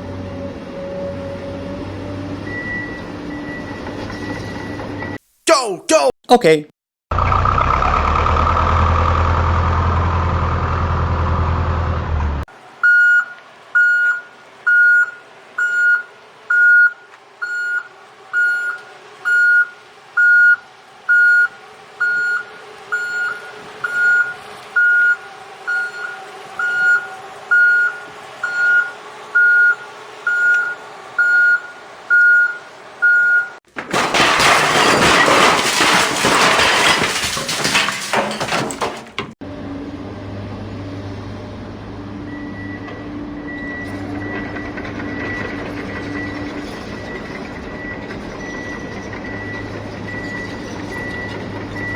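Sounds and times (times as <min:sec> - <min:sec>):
loud engine rumble: 0:00.0 - 0:05.1, 0:07.1 - 0:12.8, 0:39.4 - 0:51.9
reversing alarm beeps: 0:02.4 - 0:05.2, 0:12.8 - 0:33.6, 0:42.2 - 0:51.9.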